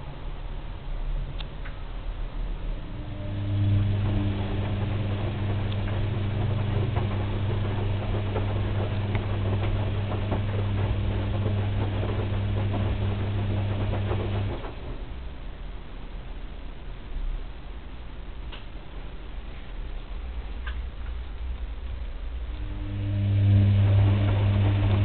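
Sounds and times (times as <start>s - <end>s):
washing machine motor humming: 2.6s - 15.8s, 22.2s - 25.0s
water and laundry churning: 3.1s - 15.2s, 23.1s - 25.0s.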